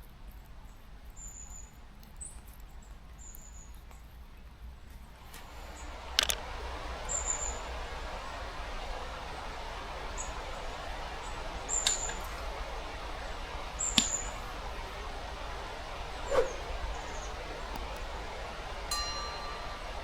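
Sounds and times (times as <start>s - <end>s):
faint hiss: 5.0s - 20.0s.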